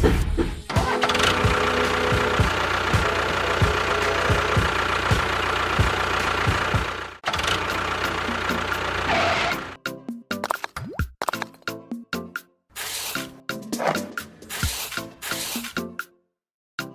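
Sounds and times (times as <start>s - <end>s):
engine running with low thump: 1.0s - 9.0s.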